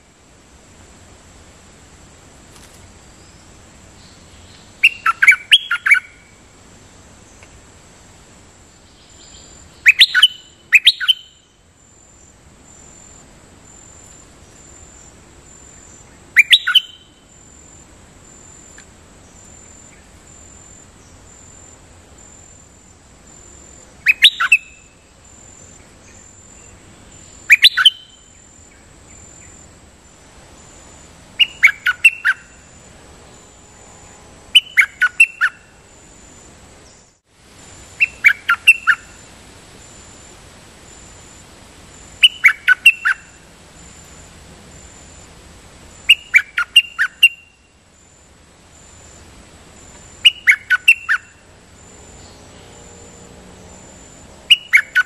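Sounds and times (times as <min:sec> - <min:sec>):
bird calling in sharp high bursts: 0:04.8 - 0:06.4, 0:09.2 - 0:11.6, 0:15.9 - 0:17.6, 0:24.0 - 0:25.5, 0:27.1 - 0:28.4, 0:31.4 - 0:32.8, 0:34.5 - 0:35.8, 0:37.9 - 0:39.3, 0:42.2 - 0:43.5, 0:46.0 - 0:47.8, 0:50.1 - 0:51.5, 0:54.0 - 0:55.0.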